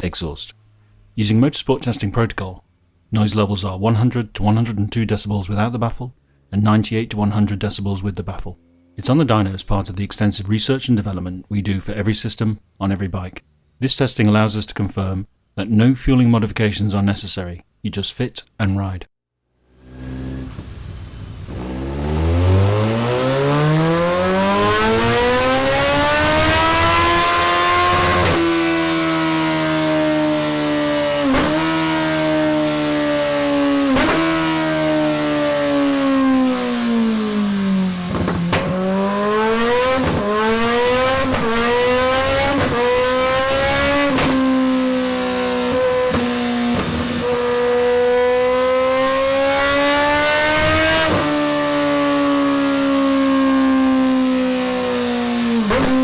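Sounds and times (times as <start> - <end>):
motorcycle engine revving: 19.6 - 56.0.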